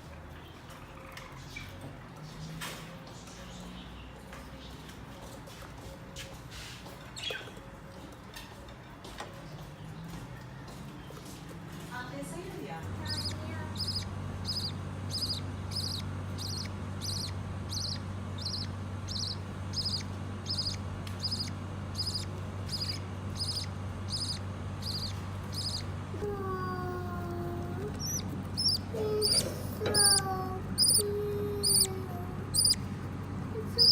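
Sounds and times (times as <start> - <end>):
low steady hum: 11.9 - 33.9
bird high chirping: 12.9 - 32.9, 33.6 - 33.9.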